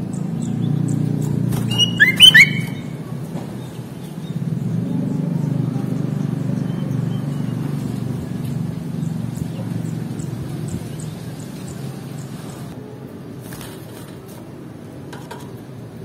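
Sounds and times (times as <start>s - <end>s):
motor vehicle rumbling: 0.0s - 16.0s.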